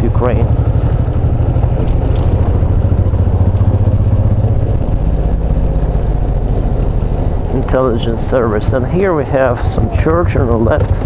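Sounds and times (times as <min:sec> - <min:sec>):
motorcycle engine droning: 0:00.0 - 0:11.0.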